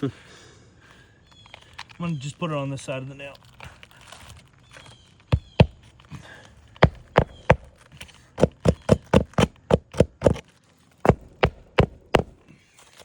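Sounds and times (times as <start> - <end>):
hammer striking a nail: 5.4 - 5.8, 6.8 - 7.7, 8.4 - 10.4, 11.1 - 12.4.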